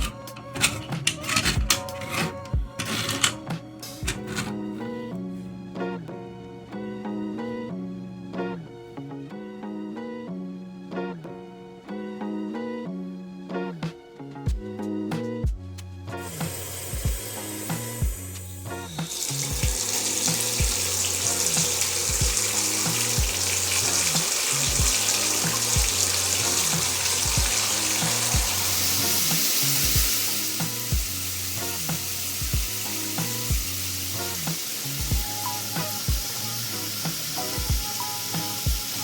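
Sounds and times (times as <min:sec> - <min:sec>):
background music with beat: 0:00.0 - 0:39.0
shower water spraying: 0:16.2 - 0:39.0.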